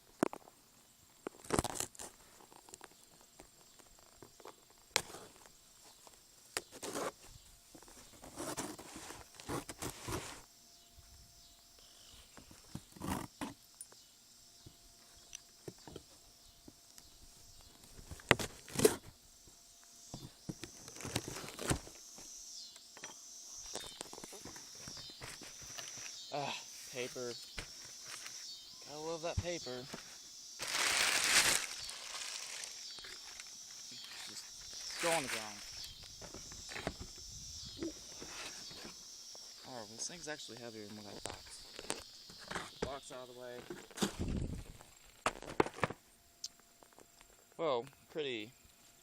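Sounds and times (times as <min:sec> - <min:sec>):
cardboard box scraping and knocking: 0:08.0 - 0:10.4
packing paper rustling: 0:30.6 - 0:35.8.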